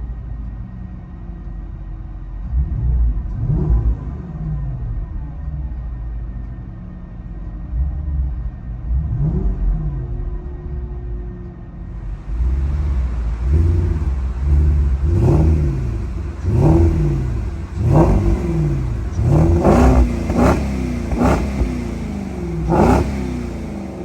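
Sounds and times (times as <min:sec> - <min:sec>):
car engine revving: 0:12.0 - 0:24.0.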